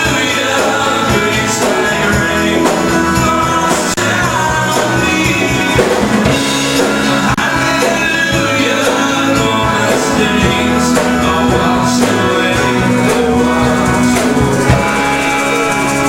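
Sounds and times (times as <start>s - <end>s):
voices singing: 0.0s - 16.0s
worship band playing: 0.0s - 16.0s.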